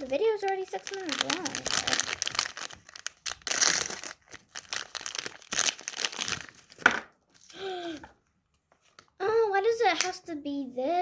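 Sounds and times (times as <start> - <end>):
packaging torn and crumpled: 0.0 - 6.8.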